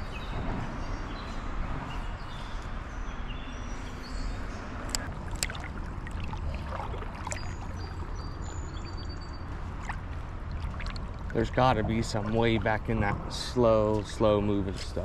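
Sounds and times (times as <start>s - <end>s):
creek water running: 4.9s - 15.0s.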